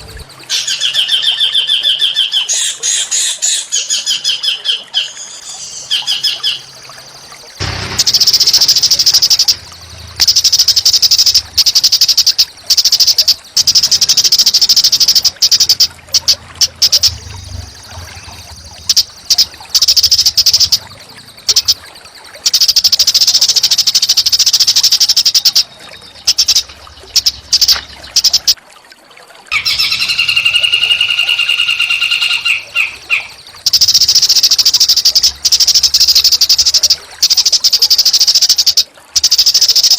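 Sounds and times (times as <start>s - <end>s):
songbird harsh chattering calls: 0.0s - 28.6s, 29.5s - 39.9s
bird whistled notes: 29.6s - 37.9s.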